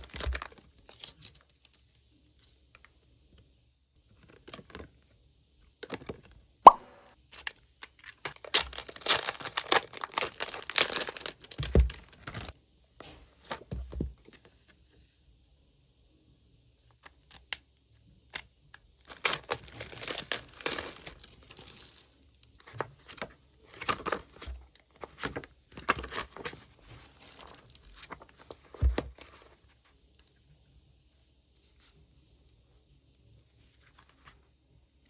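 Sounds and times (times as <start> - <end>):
packaging crinkling and tearing: 0.0 - 1.8, 7.3 - 12.6, 19.0 - 29.6.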